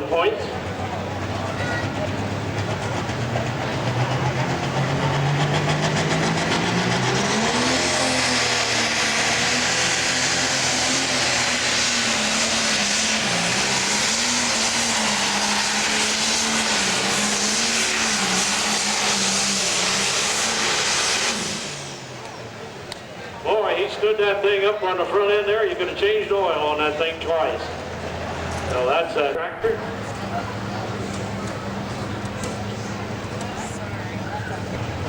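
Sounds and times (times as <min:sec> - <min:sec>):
diesel engine at full power: 0:00.0 - 0:35.0.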